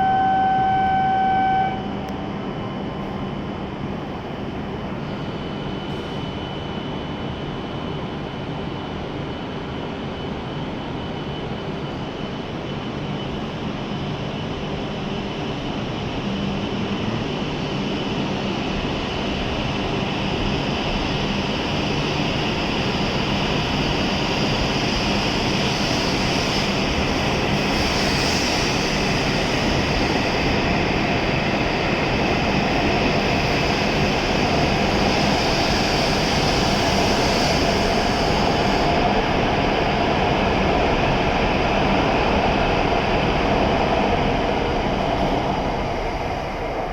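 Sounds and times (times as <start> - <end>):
high-speed train pulling out: 0.0 - 46.9.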